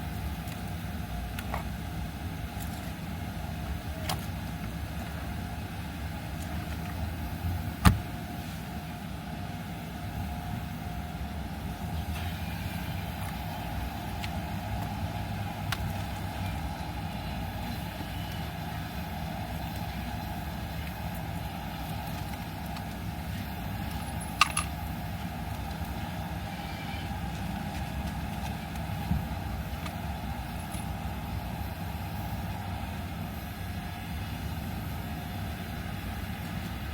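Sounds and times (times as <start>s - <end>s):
car engine idling: 0.0s - 36.9s.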